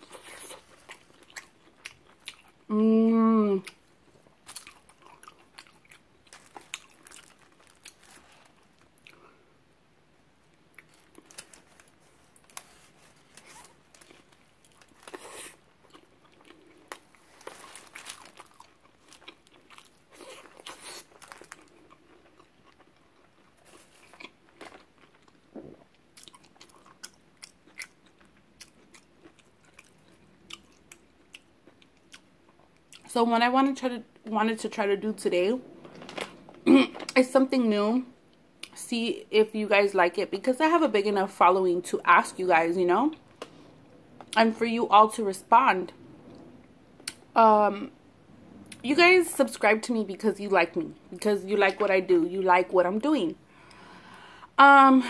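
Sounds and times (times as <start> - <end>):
person chewing food: 0.0 - 2.7, 3.6 - 9.3, 10.5 - 33.1.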